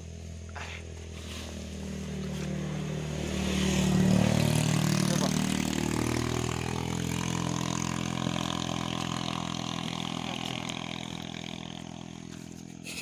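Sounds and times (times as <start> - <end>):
motorcycle engine idling: 4.0 - 13.0.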